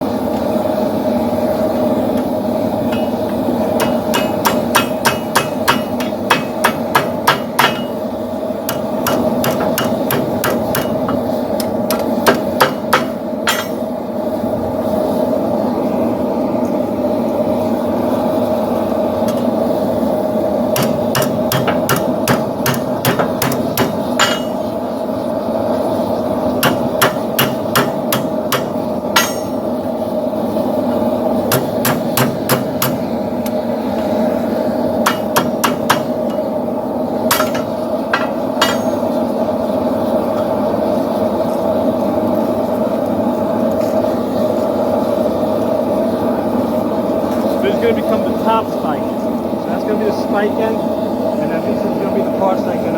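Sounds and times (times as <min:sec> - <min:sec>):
steady background roar: 0:00.0 - 0:52.9
hammer ringing on anvil: 0:02.9 - 0:03.2, 0:03.8 - 0:08.0, 0:11.9 - 0:13.9, 0:20.8 - 0:24.7, 0:26.6 - 0:29.6, 0:37.3 - 0:39.0.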